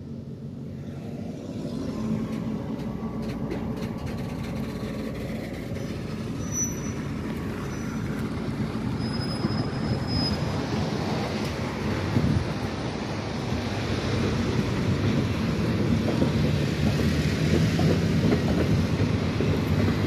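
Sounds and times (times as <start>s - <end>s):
steel wheels rumbling on rails: 0.6s - 20.0s.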